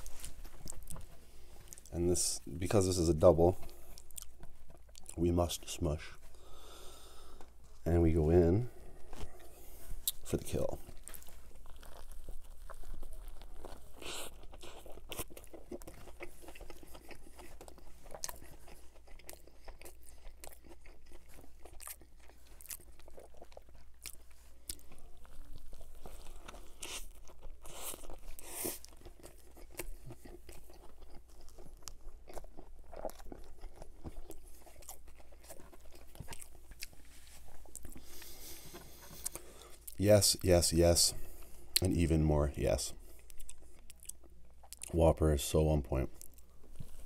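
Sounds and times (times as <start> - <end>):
person biting and chewing crunchy food: 0.0 - 5.3, 8.8 - 40.1, 43.0 - 45.0, 46.2 - 47.0.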